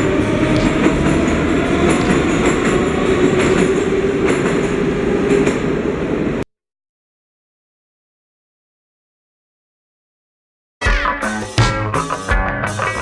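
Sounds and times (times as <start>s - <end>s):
metro train rumbling on rails: 0.0s - 6.4s.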